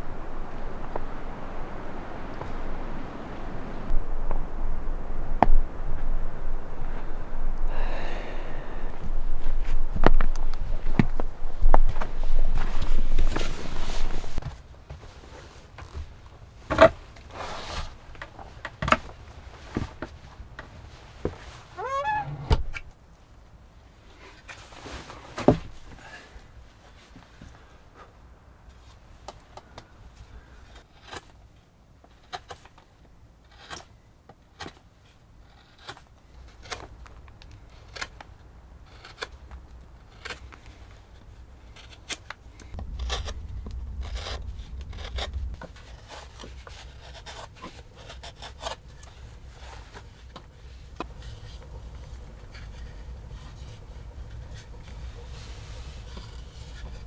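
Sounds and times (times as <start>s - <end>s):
light scraping: 0.0s - 14.4s, 16.7s - 22.9s, 40.1s - 57.0s
low wind rumble: 0.0s - 14.4s, 16.3s - 23.8s, 42.4s - 48.0s, 48.9s - 57.0s.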